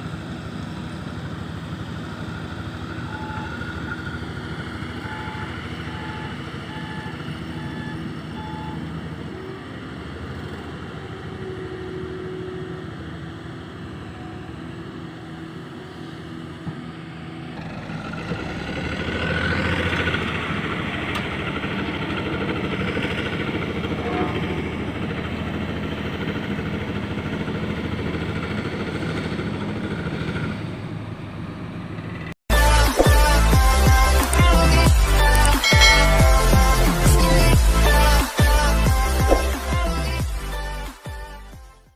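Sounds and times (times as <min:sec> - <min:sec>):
diesel truck engine running: 0:00.0 - 0:41.9
short beeps: 0:03.0 - 0:08.9, 0:35.4 - 0:36.8.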